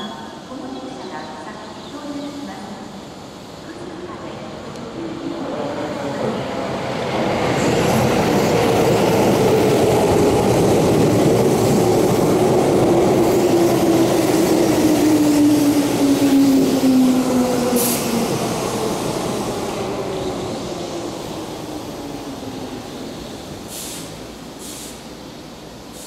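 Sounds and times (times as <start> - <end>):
brief high hiss: 23.7 - 25.0.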